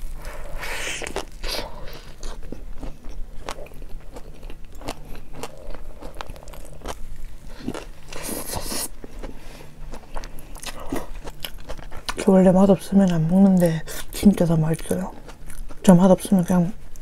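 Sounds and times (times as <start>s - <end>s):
crunchy bite: 0.2s - 8.9s
wet chewing clicks and smacks: 9.9s - 12.3s, 14.7s - 15.9s.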